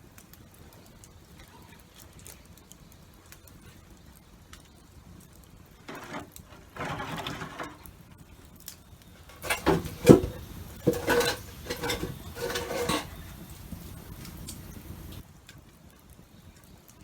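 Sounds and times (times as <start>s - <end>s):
scraping and rustling: 5.8s - 7.9s, 9.2s - 15.2s
handling knocks: 9.3s - 13.4s.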